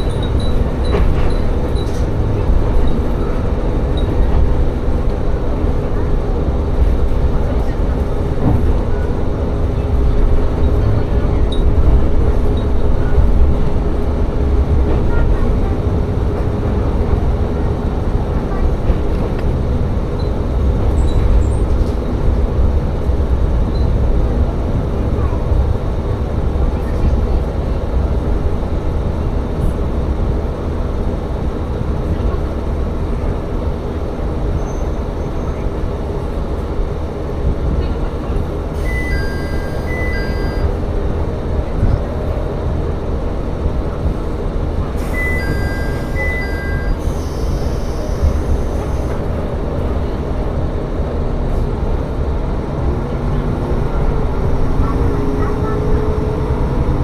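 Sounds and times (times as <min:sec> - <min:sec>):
train wheels rumbling: 0:00.0 - 0:57.0
diesel engine drone: 0:36.4 - 0:57.0.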